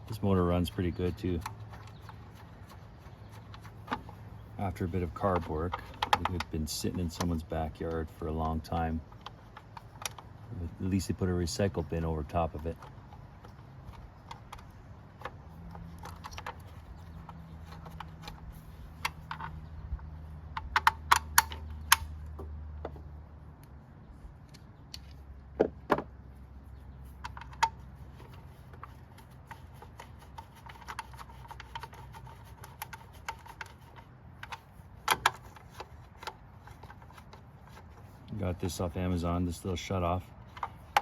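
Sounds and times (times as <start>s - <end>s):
low steady hum: 0.0s - 41.0s
metallic clicks of hand tools: 3.4s - 10.3s, 20.5s - 22.4s.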